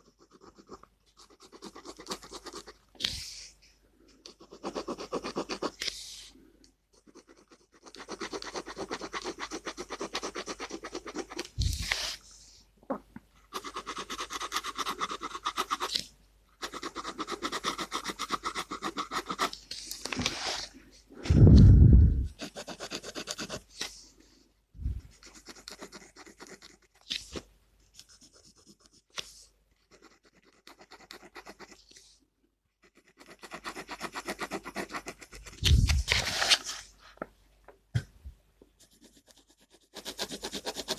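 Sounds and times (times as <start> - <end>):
pen scratching on paper: 0.0 - 3.4, 4.3 - 6.0, 6.9 - 12.2, 13.5 - 16.0, 16.6 - 20.7, 22.3 - 23.9, 25.1 - 27.2, 28.0 - 32.0, 32.8 - 36.1, 38.8 - 40.9.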